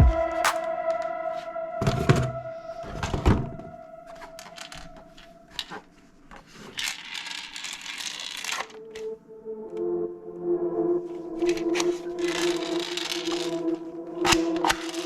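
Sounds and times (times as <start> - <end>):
held music tone: 0.0 - 5.6
scattered clicks: 14.2 - 15.0.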